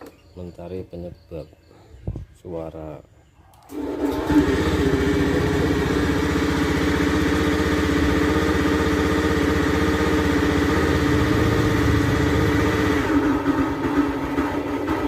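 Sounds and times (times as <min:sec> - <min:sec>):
scooter engine idling: 0:03.8 - 0:15.0.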